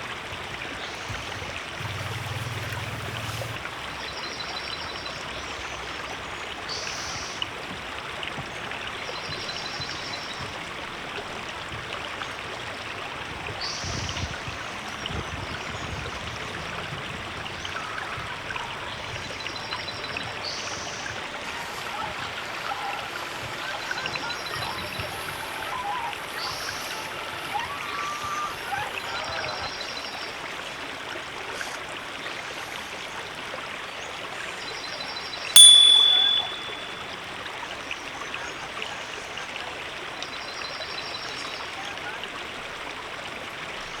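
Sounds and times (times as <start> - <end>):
river flowing: 0.0 - 8.3
bright ding: 35.6 - 37.0.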